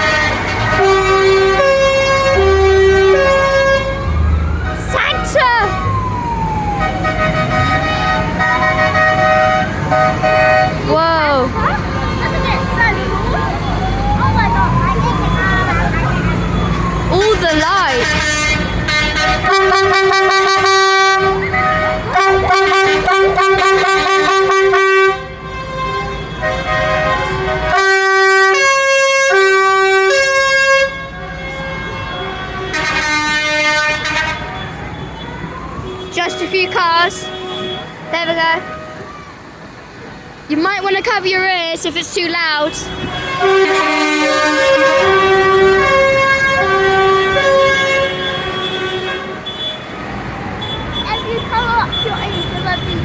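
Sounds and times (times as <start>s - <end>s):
vehicle horn blasts: 0.0s - 4.0s, 7.0s - 10.9s, 18.0s - 34.7s, 35.8s - 39.0s, 42.6s - 49.9s
engines running: 4.0s - 24.4s.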